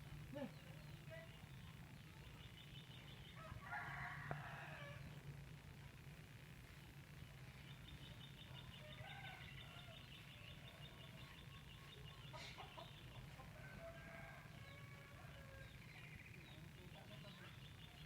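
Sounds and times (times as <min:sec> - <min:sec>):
distant bird calls: 0:07.1 - 0:18.0.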